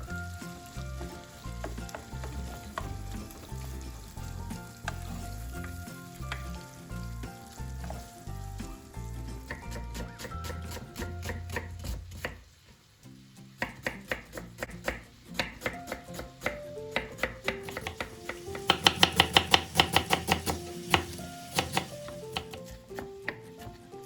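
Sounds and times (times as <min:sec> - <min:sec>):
soft background music: 0:00.0 - 0:12.4, 0:13.0 - 0:24.0
knife chopping on cutting board: 0:09.4 - 0:12.4, 0:13.6 - 0:23.8.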